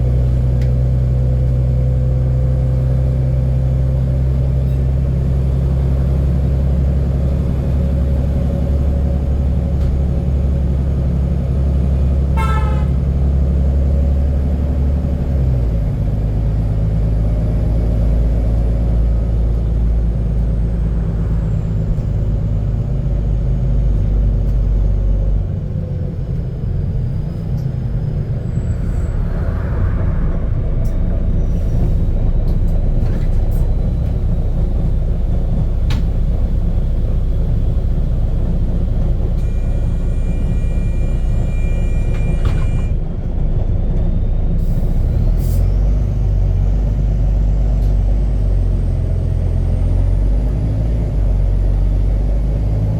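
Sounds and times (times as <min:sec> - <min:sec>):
bus engine drone: 0:00.0 - 0:52.9
short beep: 0:39.4 - 0:43.0.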